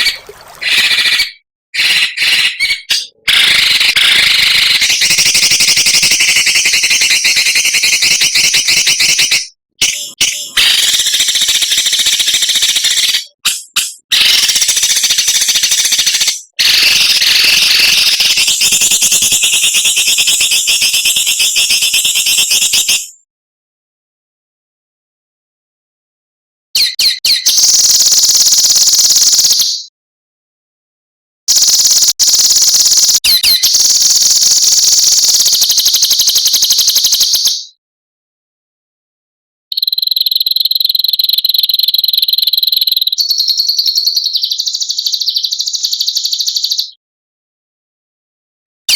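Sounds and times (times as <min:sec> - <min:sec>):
songbird rasping rattling call: 0:00.0 - 0:23.1, 0:26.8 - 0:29.9, 0:31.5 - 0:37.8, 0:39.7 - 0:46.9
whistled bird notes: 0:00.0 - 0:23.2, 0:26.8 - 0:29.9, 0:32.7 - 0:37.8, 0:39.7 - 0:47.0.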